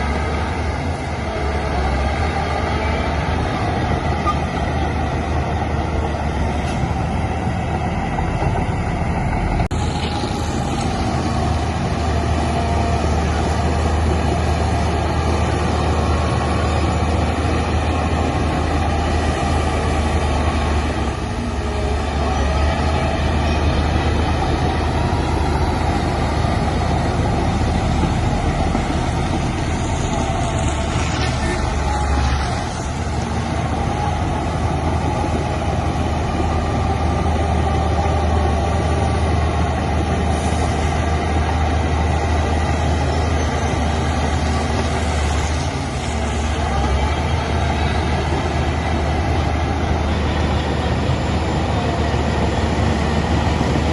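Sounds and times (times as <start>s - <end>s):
diesel machinery engine drone: 0.0s - 53.9s.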